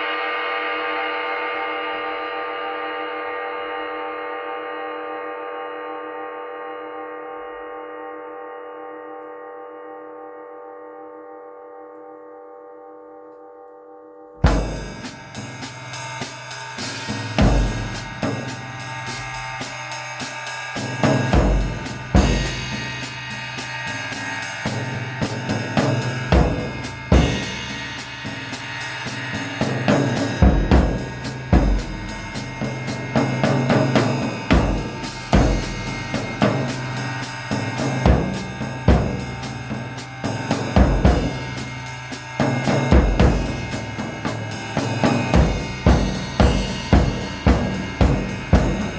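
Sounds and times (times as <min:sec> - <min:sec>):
drum kit playing: 0:14.4 - 0:48.9
steady low note: 0:14.4 - 0:48.9.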